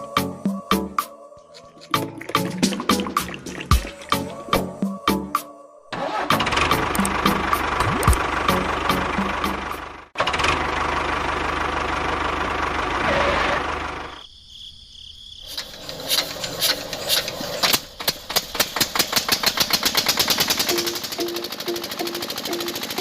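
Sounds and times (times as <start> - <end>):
fast rhythmic knocking: 2.0 - 4.3, 19.8 - 23.0
engine running: 6.0 - 14.2, 15.5 - 23.0.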